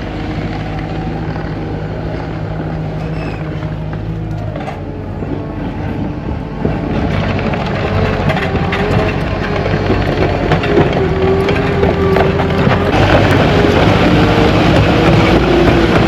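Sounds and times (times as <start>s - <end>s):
diesel engine under load: 0.0s - 16.0s
excavator knocks: 6.5s - 16.0s.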